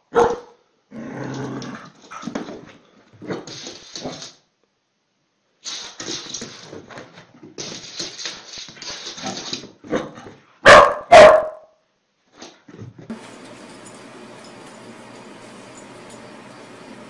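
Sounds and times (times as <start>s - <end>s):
dog barking: 0.1s - 0.6s, 10.6s - 11.7s.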